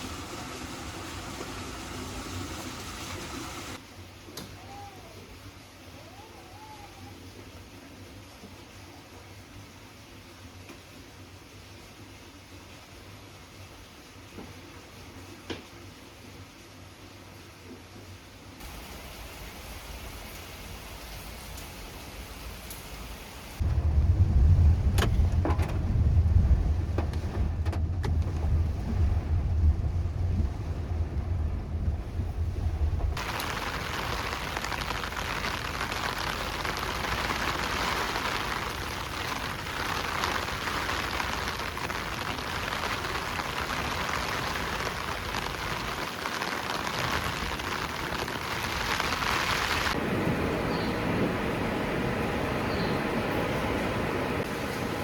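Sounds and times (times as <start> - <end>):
heavy rain hissing: 0.0 - 3.8, 18.6 - 25.3, 28.2 - 55.0
deep low rumble: 23.6 - 33.7.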